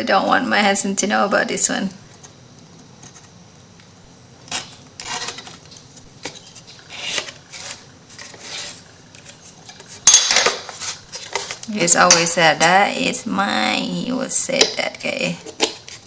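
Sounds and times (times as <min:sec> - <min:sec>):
knife scraping paper: 0:04.5 - 0:05.6, 0:06.3 - 0:09.6.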